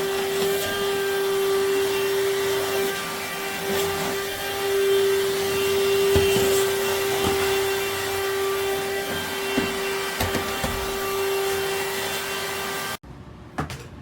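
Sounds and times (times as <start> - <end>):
handheld vacuum cleaner running: 0.0 - 13.0.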